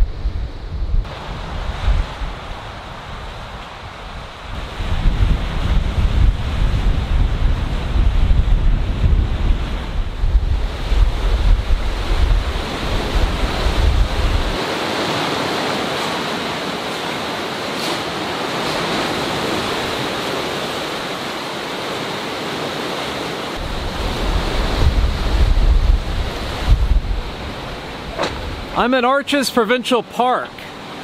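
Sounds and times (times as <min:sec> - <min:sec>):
wind buffeting microphone: 0:00.0 - 0:16.4, 0:23.6 - 0:28.8
ocean surf rushing: 0:00.0 - 0:31.0.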